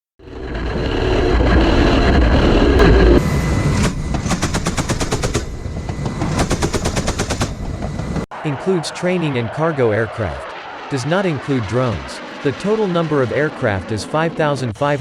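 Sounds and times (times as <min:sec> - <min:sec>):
heavy rumble: 0:00.2 - 0:08.3
automatic gunfire: 0:03.8 - 0:05.6, 0:06.3 - 0:07.6.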